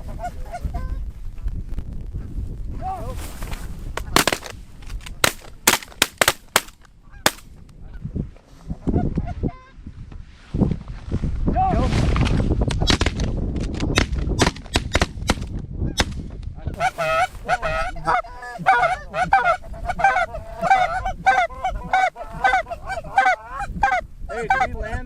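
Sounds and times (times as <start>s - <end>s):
geese honking and clucking: 0.0s - 1.0s, 6.6s - 9.8s, 16.6s - 24.9s
wind rumble on microphone: 0.0s - 5.7s, 6.8s - 25.0s.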